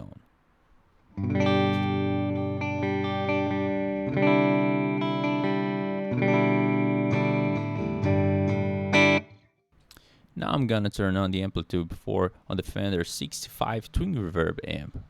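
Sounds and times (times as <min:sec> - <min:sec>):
electric guitar chords: 0:01.1 - 0:09.5.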